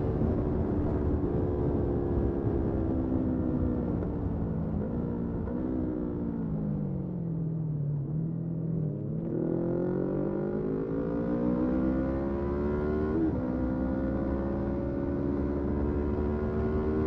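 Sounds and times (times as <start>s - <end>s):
motorcycle engine accelerating: 9.2s - 17.0s.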